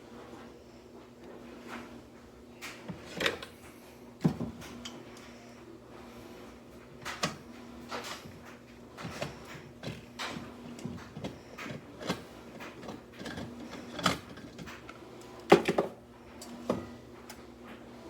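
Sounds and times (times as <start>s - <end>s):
objects being handled and set down: 6.8s - 17.0s.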